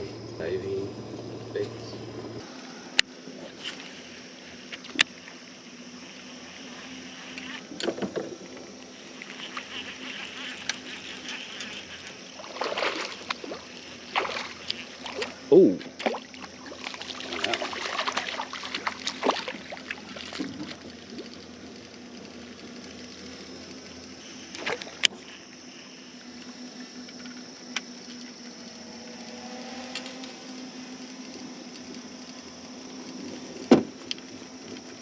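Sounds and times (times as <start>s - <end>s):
low hum: 0.0s - 35.0s
water lapping against boat: 11.2s - 21.4s.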